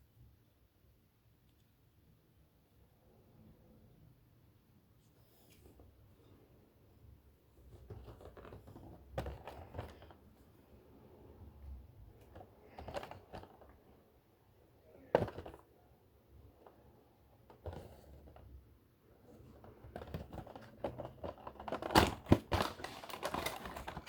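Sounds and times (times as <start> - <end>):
packaging rustling: 19.4 - 24.0.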